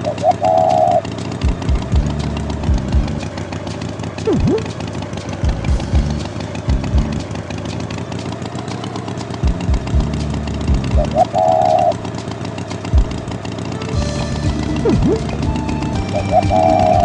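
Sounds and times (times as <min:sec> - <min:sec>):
cartoon tractor engine: 0:00.0 - 0:17.0
low thumps: 0:01.4 - 0:03.4, 0:04.2 - 0:04.8, 0:05.4 - 0:07.4, 0:09.4 - 0:11.2, 0:12.9 - 0:13.4, 0:14.0 - 0:17.0
swooping sound effect: 0:04.2 - 0:04.8, 0:14.0 - 0:17.0.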